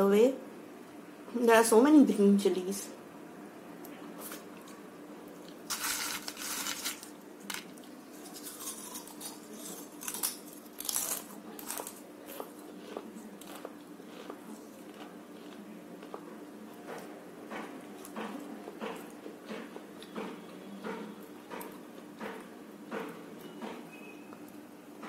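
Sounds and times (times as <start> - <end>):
crunching crisp food: 5.5 - 16.3.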